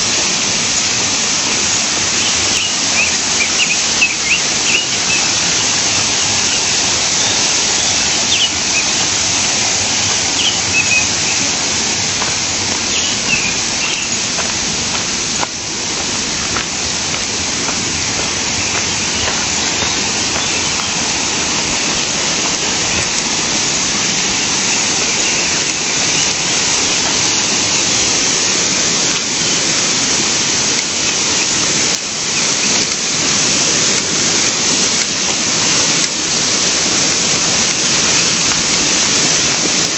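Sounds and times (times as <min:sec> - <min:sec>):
river water flowing: 0:00.0 - 0:39.9
bird chirps: 0:02.2 - 0:09.1, 0:10.0 - 0:11.5, 0:12.8 - 0:14.3, 0:18.4 - 0:22.2.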